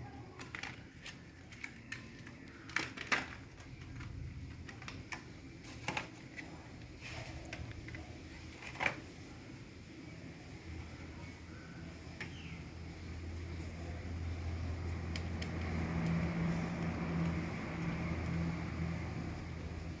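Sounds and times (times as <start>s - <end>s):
computer parts clicking and tapping: 0.4s - 5.3s.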